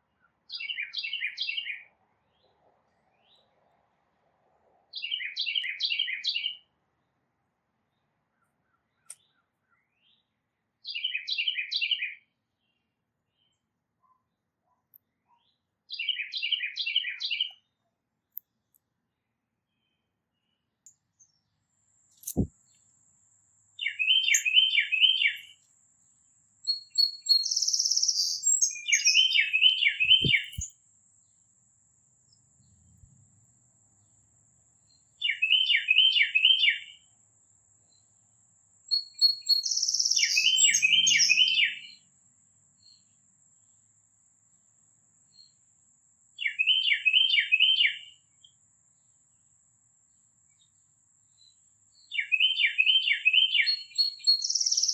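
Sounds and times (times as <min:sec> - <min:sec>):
songbird whistling: 0:22.2 - 0:22.5, 0:23.8 - 0:25.6, 0:26.7 - 0:30.7, 0:35.2 - 0:36.9, 0:38.9 - 0:41.9, 0:46.4 - 0:48.0, 0:52.2 - 0:54.9.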